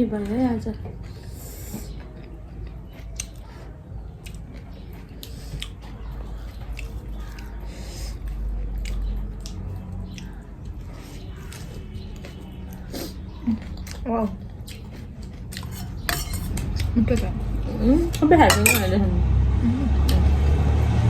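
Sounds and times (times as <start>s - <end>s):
person chewing food: 0.2s - 17.0s.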